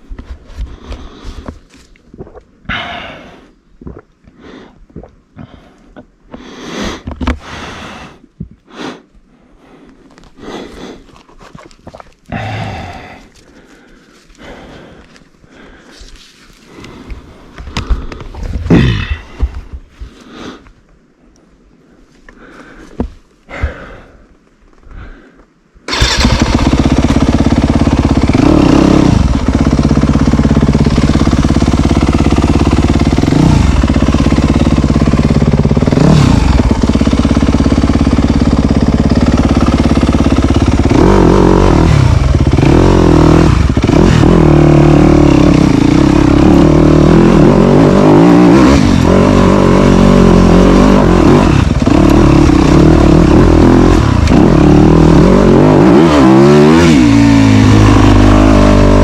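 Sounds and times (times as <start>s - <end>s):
dirt bike engine revving: 25.9s - 59.0s.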